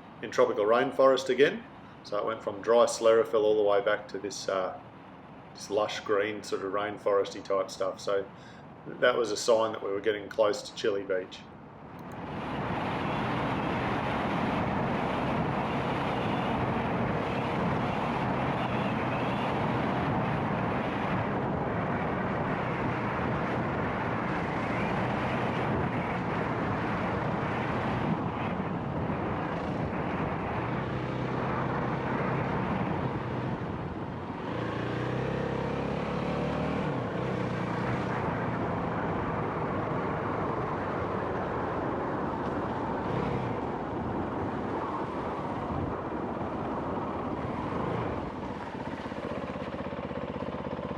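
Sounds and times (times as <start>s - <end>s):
wind: 0.0s - 50.9s
dirt bike engine running: 46.1s - 50.9s.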